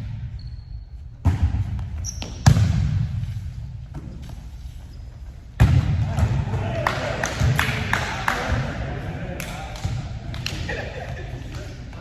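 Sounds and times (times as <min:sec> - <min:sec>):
shoe squeaks: 0:00.3 - 0:01.2, 0:02.0 - 0:02.5, 0:04.3 - 0:05.6
volleyball thuds: 0:01.2 - 0:03.3, 0:05.6 - 0:08.8.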